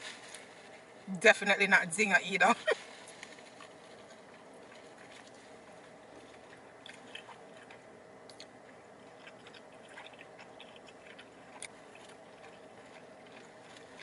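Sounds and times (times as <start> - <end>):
person chewing: 3.0 - 14.0.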